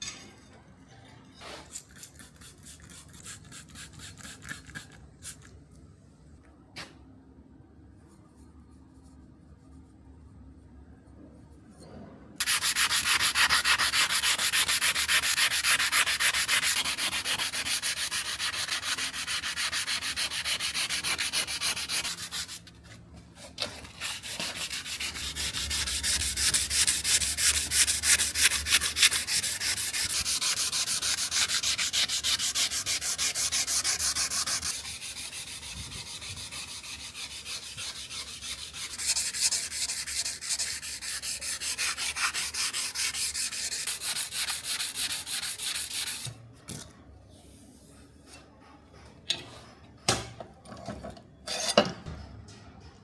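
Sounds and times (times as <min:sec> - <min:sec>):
sanding steel knife blade: 0:12.4 - 0:22.7, 0:23.9 - 0:46.3.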